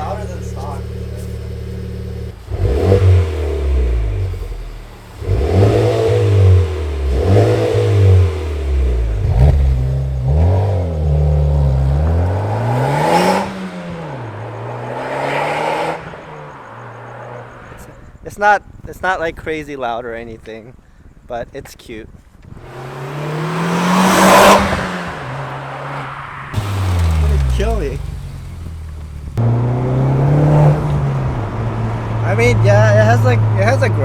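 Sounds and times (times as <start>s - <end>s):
car engine idling: 0.0s - 14.6s, 22.6s - 34.0s
car engine revving: 0.0s - 17.8s, 22.6s - 34.0s.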